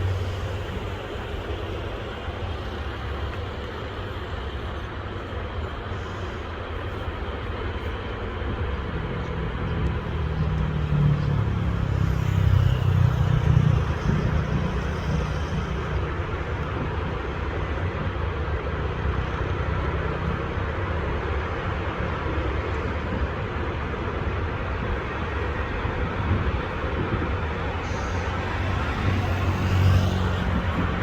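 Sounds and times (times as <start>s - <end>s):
diesel railcar rumbling: 0.0s - 31.0s.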